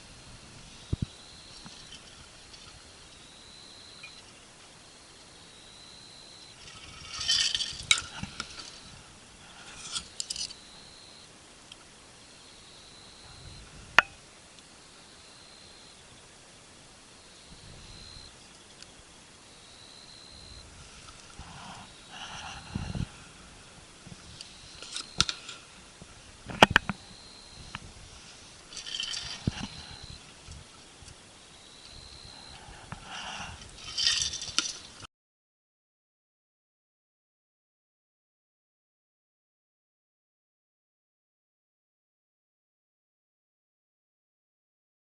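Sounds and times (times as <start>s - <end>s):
rustling with metallic clinks: 6.6s - 8.9s, 9.6s - 10.7s, 28.2s - 30.6s, 33.6s - 35.0s
camp gear clicking and clattering: 28.7s - 30.6s, 33.6s - 35.0s.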